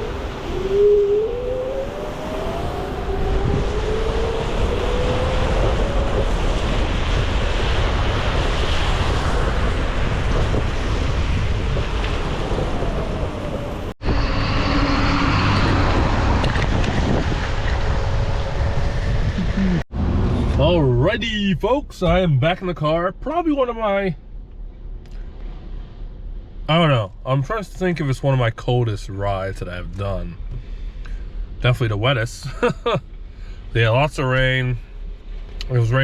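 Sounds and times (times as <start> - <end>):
electric scooter motor whine: 0.0 - 6.2
wind buffeting microphone: 0.0 - 22.5.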